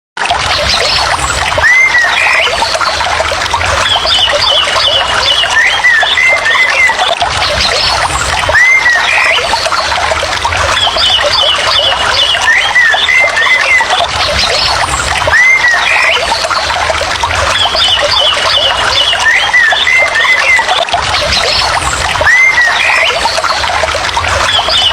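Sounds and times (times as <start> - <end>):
rushing water: 0.2 - 24.9
bird chirping calls: 0.5 - 3.1, 3.8 - 10.0, 10.8 - 16.8, 17.4 - 23.7
bird trill: 3.8 - 10.0, 10.8 - 16.7, 17.5 - 23.6.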